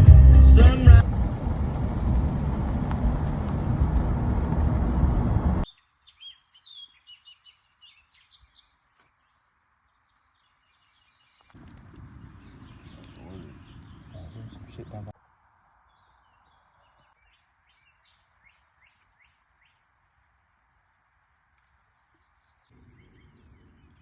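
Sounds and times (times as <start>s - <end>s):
loud steady rushing noise: 0.7s - 5.6s
faint bird chirps: 5.7s - 24.0s.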